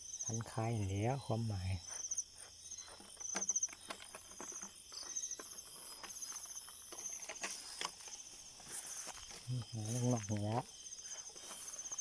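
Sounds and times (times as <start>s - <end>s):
insects chirping: 0.0s - 12.0s
rustling through grass and brush: 2.5s - 12.0s.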